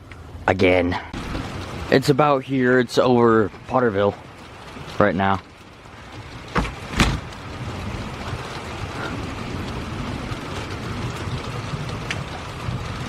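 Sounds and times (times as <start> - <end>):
heavy rain: 0.0 - 13.0
wind: 0.0 - 13.0
low thunder rumble: 1.0 - 13.0
sharp knocks: 6.5 - 7.3.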